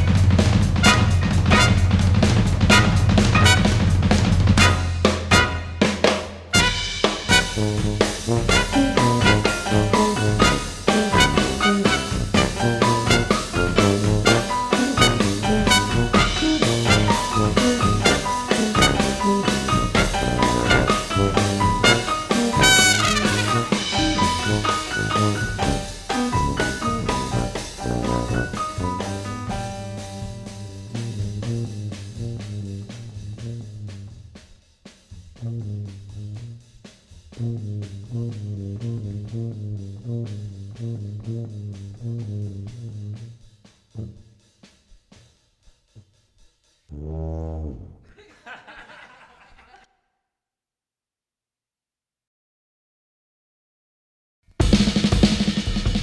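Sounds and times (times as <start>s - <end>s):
brass band playing jazz: 0.0s - 34.2s, 35.4s - 36.6s, 37.4s - 43.3s.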